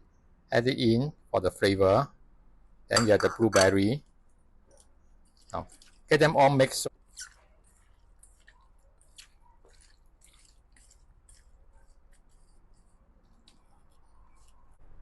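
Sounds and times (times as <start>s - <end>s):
wet squishing of food being mixed: 6.9s - 14.8s.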